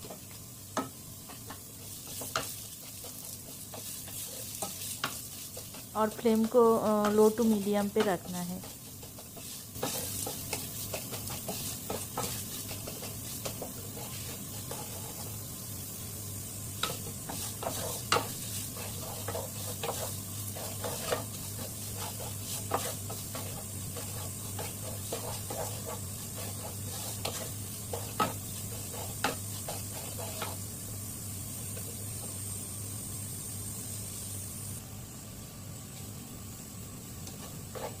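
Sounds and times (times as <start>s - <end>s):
spoon scraping a pan: 0.0s - 15.5s, 16.8s - 30.7s, 37.2s - 38.0s
low sizzle: 0.0s - 38.0s.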